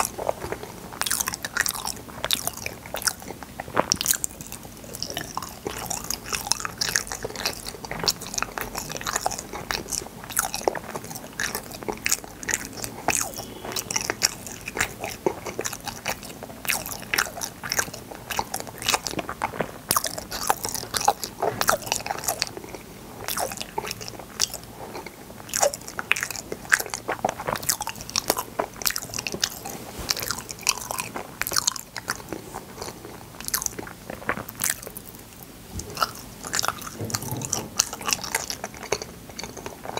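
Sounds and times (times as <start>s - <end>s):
sticky wet chewing: 0.0s - 39.9s.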